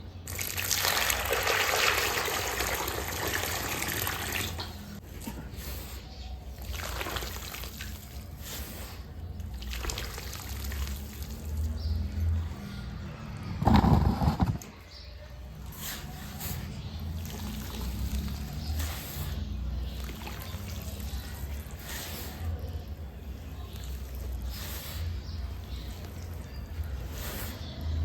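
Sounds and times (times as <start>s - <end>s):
cement slurry pouring: 0.3s - 4.7s, 6.5s - 12.0s, 15.7s - 28.0s.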